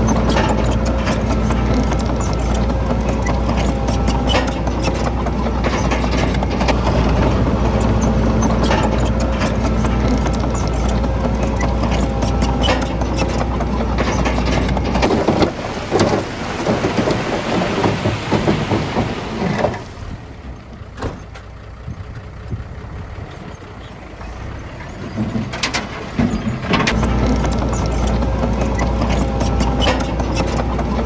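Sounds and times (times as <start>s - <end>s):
diesel machinery engine clattering: 0.0s - 31.0s.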